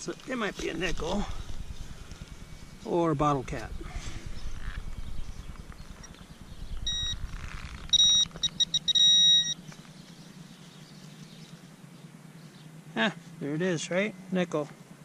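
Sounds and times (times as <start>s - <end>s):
metal detector beeping: 6.8s - 9.8s.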